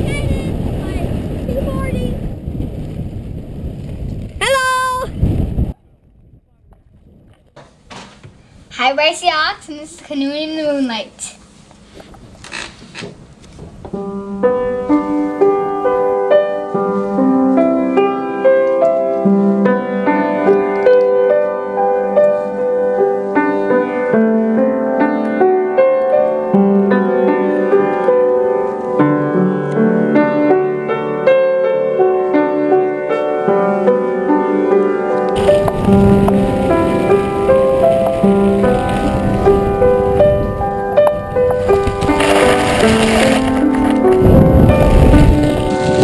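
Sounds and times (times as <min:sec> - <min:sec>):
gentle solo piano music: 0:13.9 - 0:46.0.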